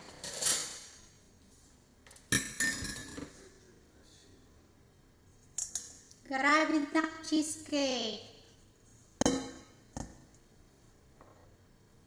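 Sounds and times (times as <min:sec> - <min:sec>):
dishes and utensils clattering: 0:00.0 - 0:01.2, 0:02.3 - 0:03.4.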